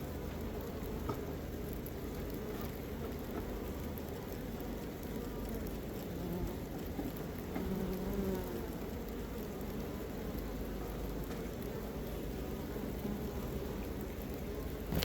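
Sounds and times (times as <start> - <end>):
honeybees buzzing: 4.3 - 15.0.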